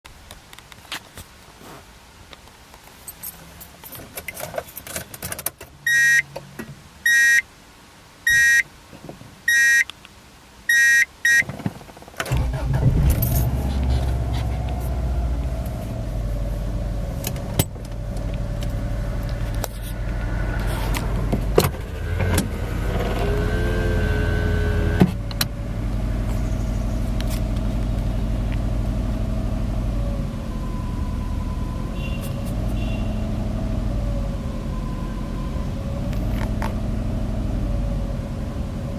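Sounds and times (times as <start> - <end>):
car warning chime beeping: 5.8 - 6.3, 7.0 - 7.4, 8.3 - 8.7, 9.5 - 9.9, 10.7 - 11.5
car engine starting and idling: 11.3 - 38.9.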